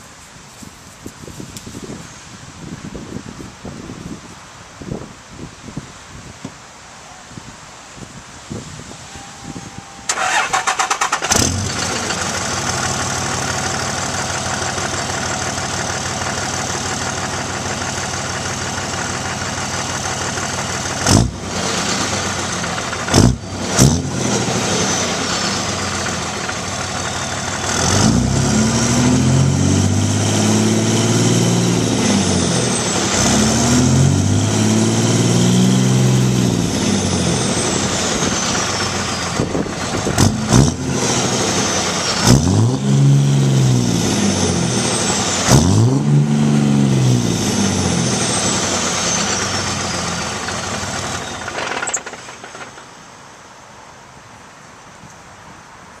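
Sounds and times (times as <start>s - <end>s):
diesel engine cranking and idling: 9.8s - 53.0s
engine revving: 10.1s - 52.2s.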